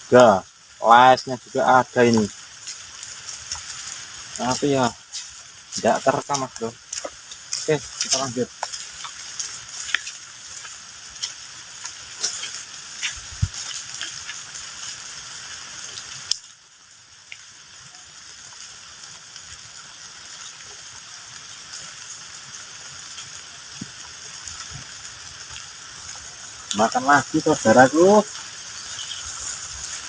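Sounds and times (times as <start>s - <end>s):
raindrops tapping close by: 0.0s - 30.0s
steady rain hiss: 0.0s - 30.0s.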